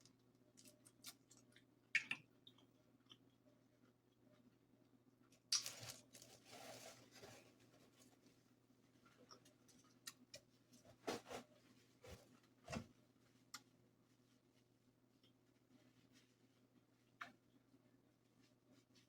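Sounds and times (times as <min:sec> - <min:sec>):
crackly rustling: 0:05.6 - 0:17.1.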